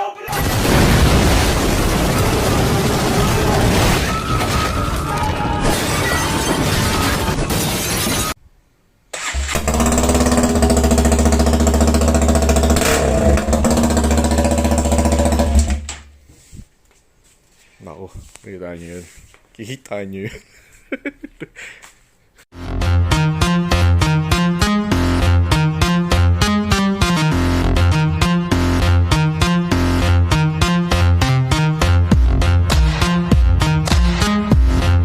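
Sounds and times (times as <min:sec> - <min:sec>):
loud crashing noise: 0:00.5 - 0:08.4
motorcycle engine idling: 0:09.6 - 0:15.6.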